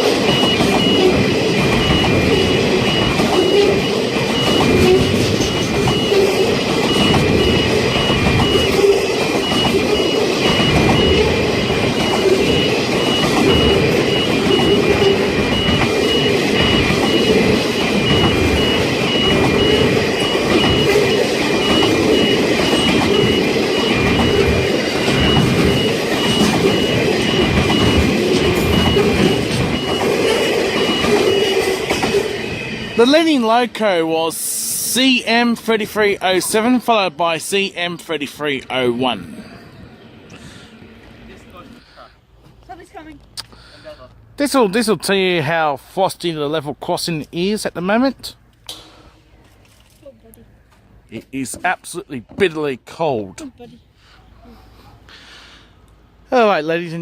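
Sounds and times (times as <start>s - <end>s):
level crossing warning bell: 0.0s - 39.2s
diesel train passing: 0.0s - 49.5s, 54.9s - 57.0s.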